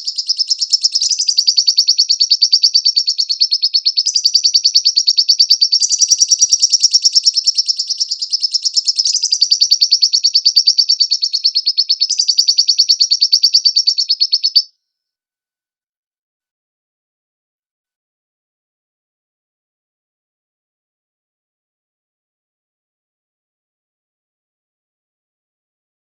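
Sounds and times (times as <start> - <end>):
bird chattering trill: 0.0 - 14.7.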